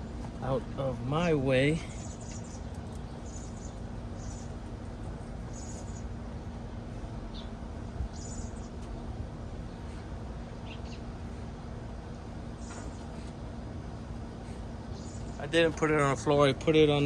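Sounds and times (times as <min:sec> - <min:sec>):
high bird chirps: 0:07.3 - 0:08.9.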